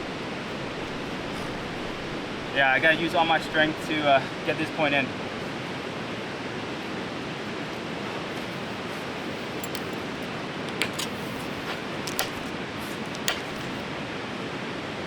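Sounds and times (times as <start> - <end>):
fast river rushing: 0.0 - 10.9.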